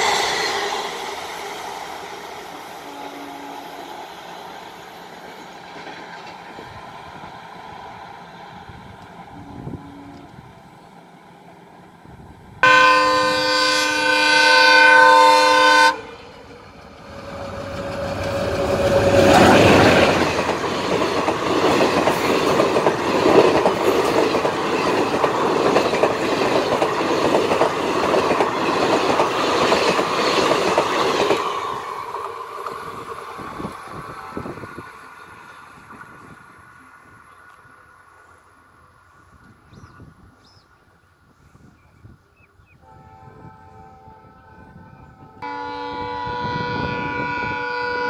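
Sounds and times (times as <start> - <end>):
locomotive horn chord: 2.8 - 3.8, 9.3 - 10.4, 12.6 - 16.2, 42.8 - 48.0
train wheels clattering: 16.4 - 33.2.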